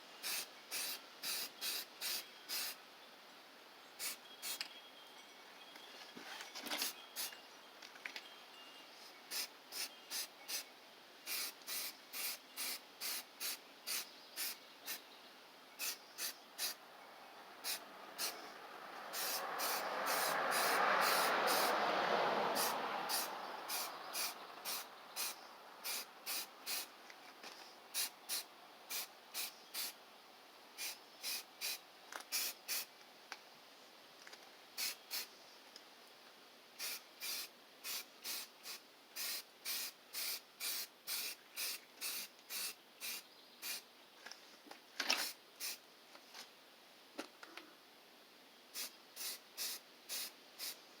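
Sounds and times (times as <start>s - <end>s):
spray can hissing in bursts: 0.2s - 2.8s, 11.3s - 15.0s, 15.8s - 16.8s, 17.6s - 18.4s, 19.1s - 21.8s, 22.6s - 26.9s, 28.0s - 30.0s, 30.8s - 32.9s, 34.8s - 35.3s, 36.8s - 43.8s, 45.2s - 45.8s, 48.8s - 50.8s.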